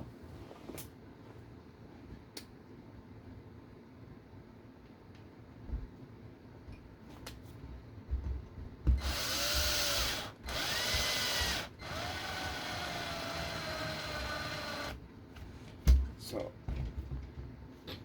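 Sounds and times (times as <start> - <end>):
power driver motor whining: 9.0 - 15.0.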